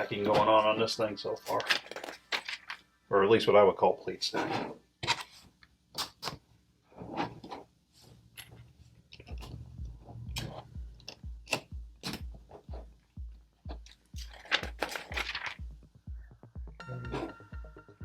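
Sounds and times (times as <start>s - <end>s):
plastic pieces clicking and clattering: 1.4s - 2.9s, 13.9s - 15.6s
rummaging through loose parts: 1.4s - 2.9s, 13.7s - 15.7s.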